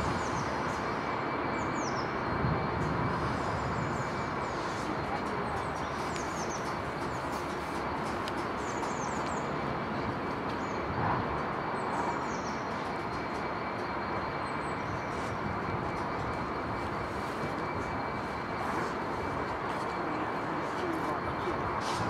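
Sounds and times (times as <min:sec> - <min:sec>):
small birds chirping: 0:00.0 - 0:02.3, 0:03.8 - 0:09.7, 0:11.8 - 0:13.4.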